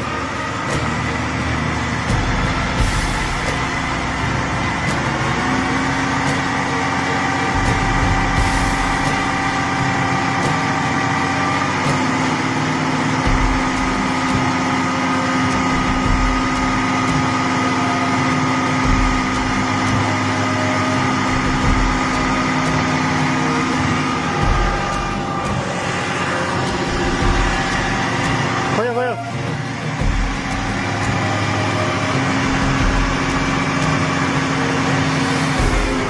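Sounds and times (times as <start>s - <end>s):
car engine at raised revs: 0.0s - 36.0s.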